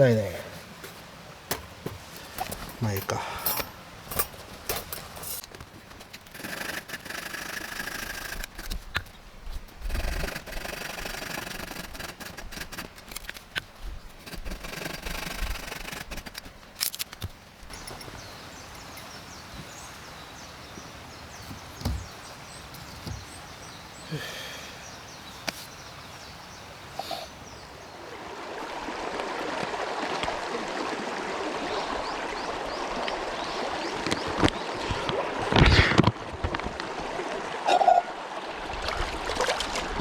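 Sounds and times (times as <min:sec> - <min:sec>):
camping gear rustling: 0:00.0 - 0:26.4
outdoor background noise: 0:00.0 - 0:40.0.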